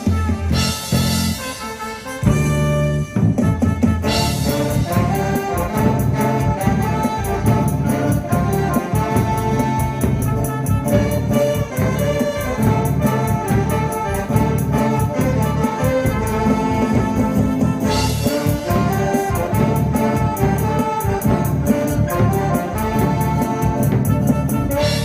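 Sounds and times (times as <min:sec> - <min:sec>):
drum kit beat on cymbals: 0:00.0 - 0:02.8, 0:03.4 - 0:25.0
brass-like melody: 0:00.0 - 0:25.0.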